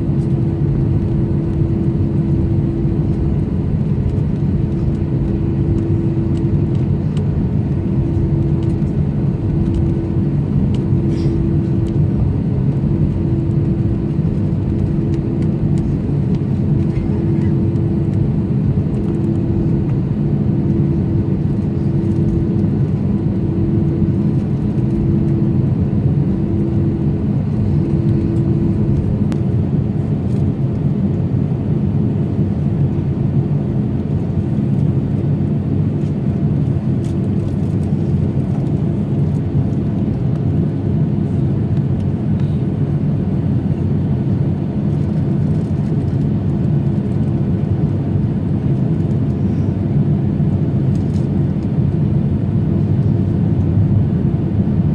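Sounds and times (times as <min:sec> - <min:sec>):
pulsing hum: 0:00.0 - 0:29.8
low engine rumble: 0:00.0 - 0:54.9.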